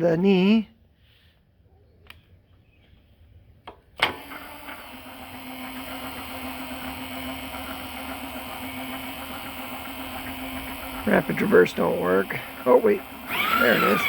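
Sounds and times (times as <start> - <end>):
motor switch click: 3.7 - 4.8
servo motor humming and whirring: 4.1 - 14.0.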